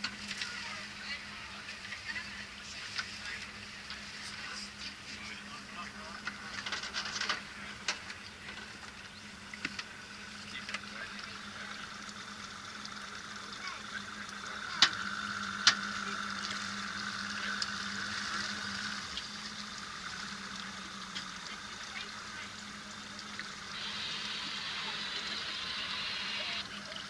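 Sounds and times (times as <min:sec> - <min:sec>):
motor boat engine hum: 0:00.0 - 0:27.0
water hissing: 0:23.3 - 0:27.0.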